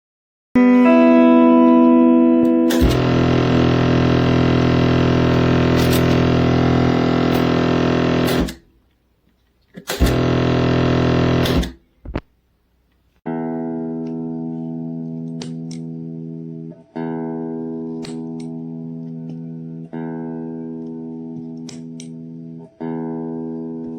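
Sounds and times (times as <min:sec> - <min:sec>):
electric guitar chords with reverb: 0:00.6 - 0:08.5, 0:13.3 - 0:23.9.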